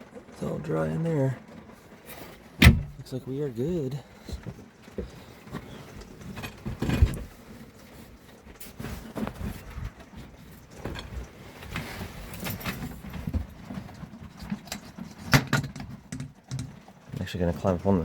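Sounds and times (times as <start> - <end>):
footsteps and knocks in a camper: 0.0 - 17.8
sharp thump: 2.6 - 3.0.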